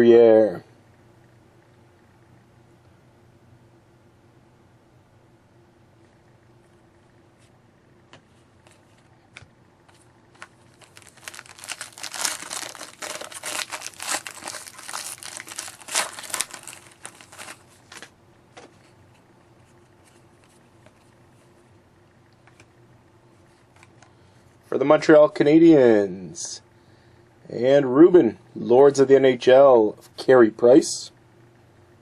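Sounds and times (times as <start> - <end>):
foil wrapper crinkling and tearing: 10.4 - 18.1.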